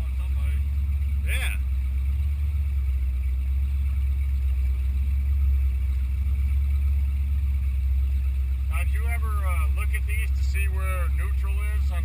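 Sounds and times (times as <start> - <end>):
boat engine running low: 0.0 - 12.0.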